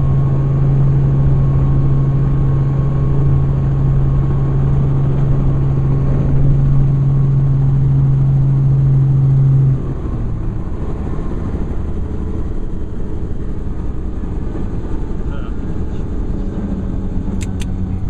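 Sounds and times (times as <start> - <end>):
helicopter hum: 0.0 - 9.2, 9.9 - 18.0
low rumbling noise: 0.0 - 18.0.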